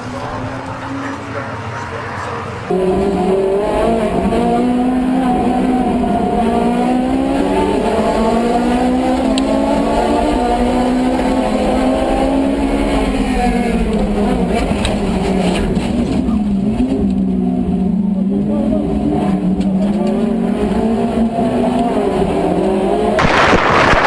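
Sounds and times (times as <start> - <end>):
car engine at high revs: 0.0 - 24.0.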